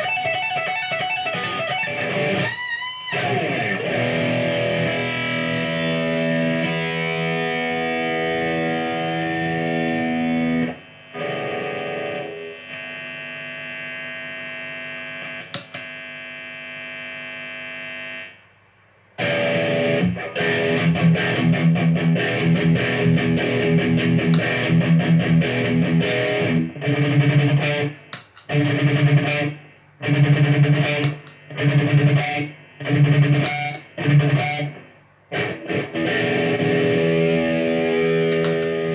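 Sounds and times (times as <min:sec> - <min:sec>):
distorted electric guitar: 0:00.0 - 0:18.3, 0:19.2 - 0:38.9.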